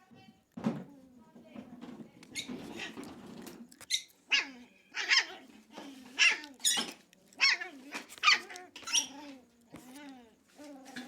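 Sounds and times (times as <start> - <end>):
dogs barking angrily: 4.2 - 6.8.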